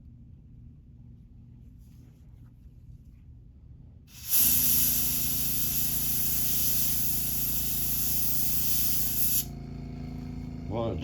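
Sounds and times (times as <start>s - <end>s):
airbrush spraying: 4.1s - 9.5s.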